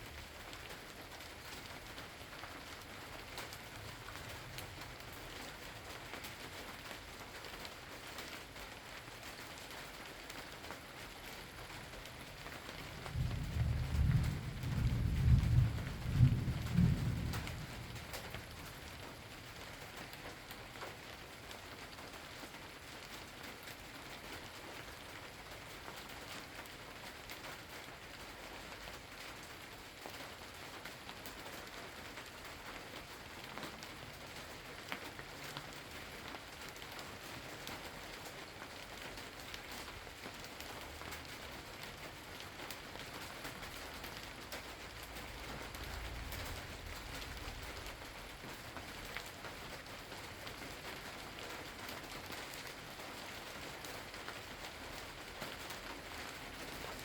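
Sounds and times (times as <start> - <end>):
raindrops ticking on a surface: 0.0 - 57.0
steady rain falling: 0.0 - 57.0
low rumble: 45.6 - 48.3.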